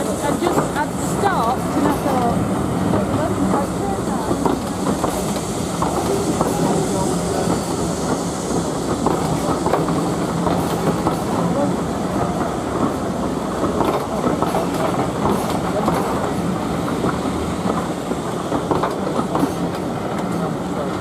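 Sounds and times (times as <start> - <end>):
train wheels clattering over rail joints: 0.0 - 21.0.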